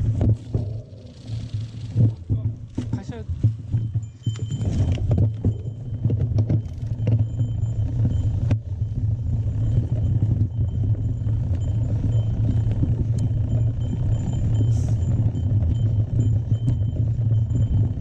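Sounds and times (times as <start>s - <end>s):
bike rumbling on dirt trail: 0.0s - 18.0s.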